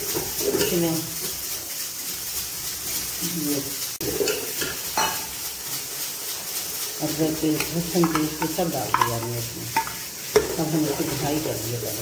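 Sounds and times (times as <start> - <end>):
onion paste sizzling in a pot: 0.0 - 12.0
steel spoon clinking on pot: 7.5 - 10.6.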